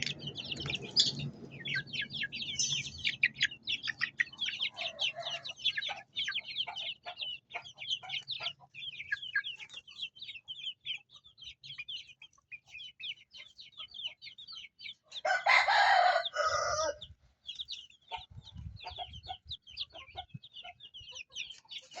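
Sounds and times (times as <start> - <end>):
chicks peeping: 0.0 - 22.0
rooster crowing: 4.7 - 5.6, 15.2 - 17.0.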